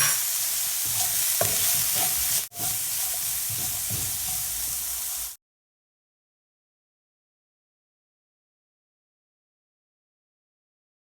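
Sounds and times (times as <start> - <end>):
onions sizzling in a pan: 0.0 - 5.4
stirring clicks and scrapes: 0.8 - 5.4.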